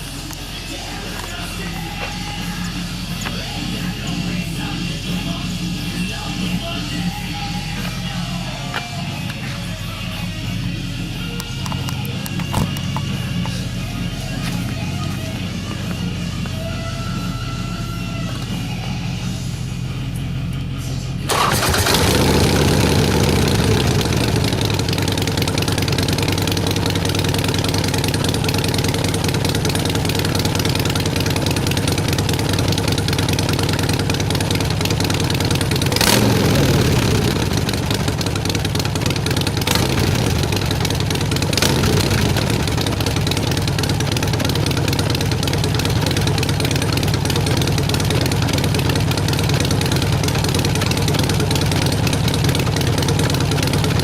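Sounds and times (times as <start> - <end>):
motorcycle engine idling: 0.0 - 54.0
motorcycle throttle blips: 11.2 - 19.4, 21.3 - 54.0.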